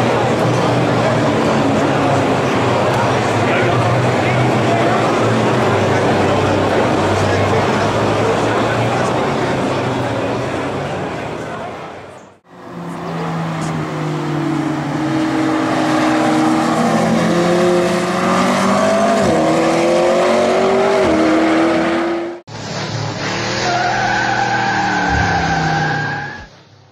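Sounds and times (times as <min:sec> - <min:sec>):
race car engine revving hard: 0:12.8 - 0:26.0.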